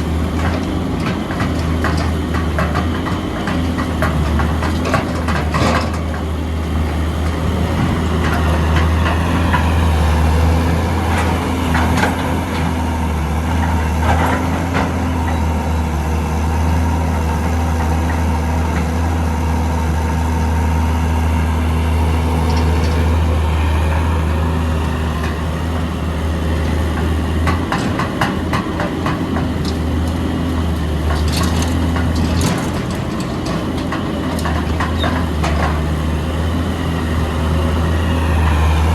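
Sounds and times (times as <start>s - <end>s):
excavator diesel engine running: 0.0s - 38.9s
knocks and clatter: 26.9s - 36.0s.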